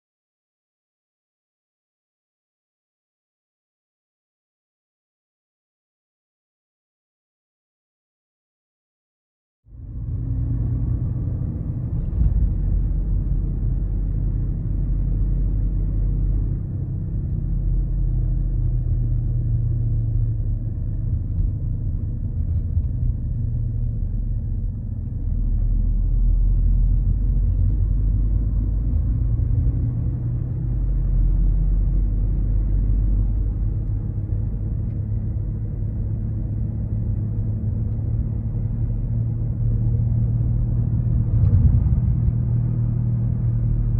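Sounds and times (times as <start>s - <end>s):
low rumbling car drone: 9.6s - 43.9s.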